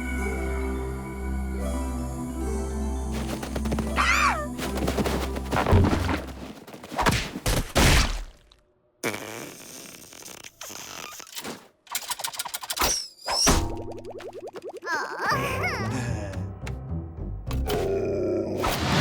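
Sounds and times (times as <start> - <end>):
cartoon thumps and whacks: 6.9 - 8.4, 12.8 - 14.4
cartoon scrapes: 9.0 - 13.5.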